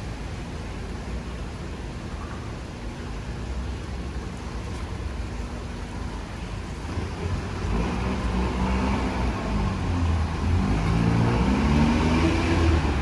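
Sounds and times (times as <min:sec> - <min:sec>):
vehicle engine passing: 0:06.9 - 0:13.0.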